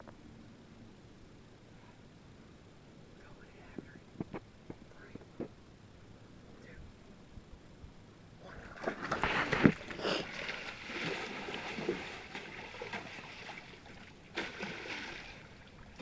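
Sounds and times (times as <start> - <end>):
water splashing in a creek: 8.5 - 16.0.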